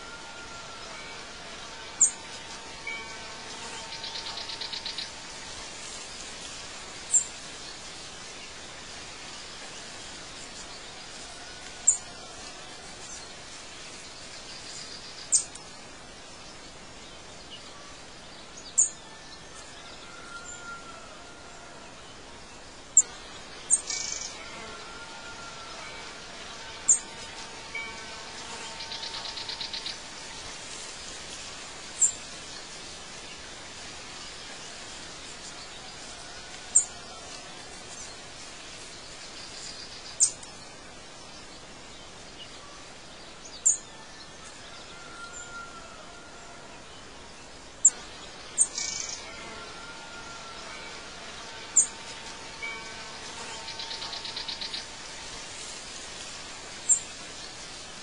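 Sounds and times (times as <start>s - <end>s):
steady background hiss: 0.0s - 58.0s
buzzy bird trill: 51.7s - 55.2s.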